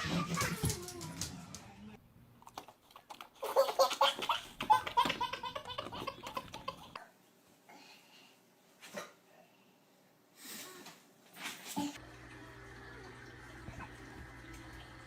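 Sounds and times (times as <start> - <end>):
baby laughing: 3.4 - 7.0.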